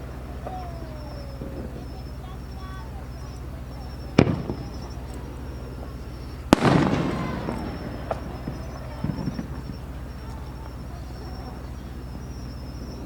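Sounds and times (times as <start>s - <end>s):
fireworks bangs: 0.0s - 13.0s
small firework pops: 3.8s - 13.0s.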